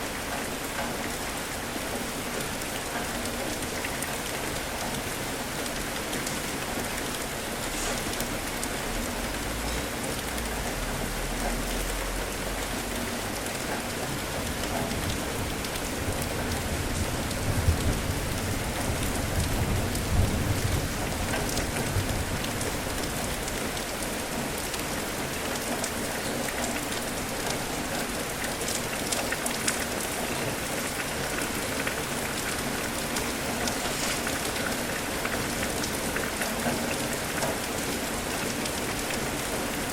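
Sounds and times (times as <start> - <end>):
rain pattering: 0.0 - 39.9
thunder rumbling: 15.0 - 23.4.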